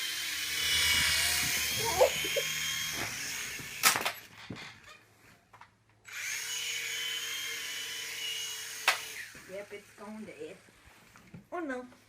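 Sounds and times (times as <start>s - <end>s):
toy helicopter motor whining: 0.0s - 4.3s, 6.0s - 10.3s.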